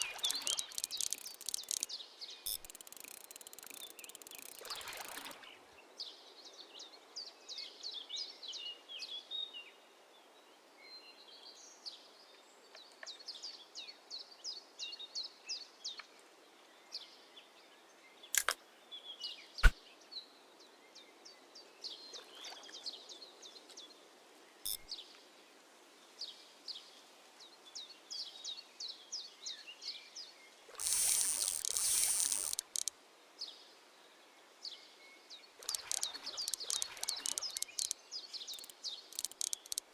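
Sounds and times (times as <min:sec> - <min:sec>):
sharp clicks: 0:00.0 - 0:01.9, 0:02.5 - 0:05.4, 0:18.4 - 0:18.6, 0:30.8 - 0:32.9, 0:35.6 - 0:39.9
birds singing high chirps: 0:00.0 - 0:05.5, 0:34.6 - 0:39.8.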